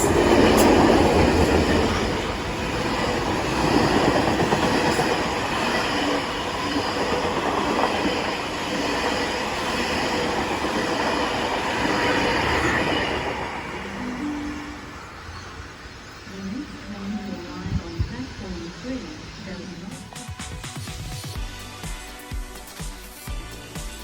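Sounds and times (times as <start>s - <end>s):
train wheels clattering over rail joints: 0.0s - 13.4s.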